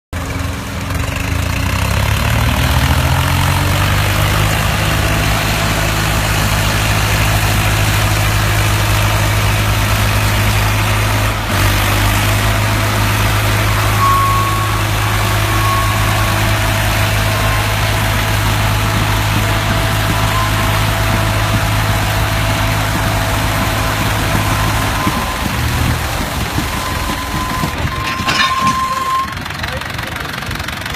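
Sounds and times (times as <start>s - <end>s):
tractor diesel engine running: 0.1s - 30.9s.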